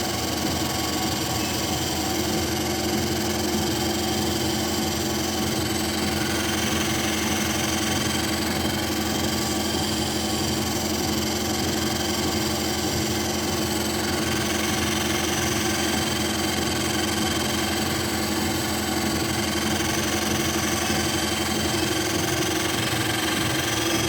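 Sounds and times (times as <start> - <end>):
treadmill motor hum: 0.0 - 24.0.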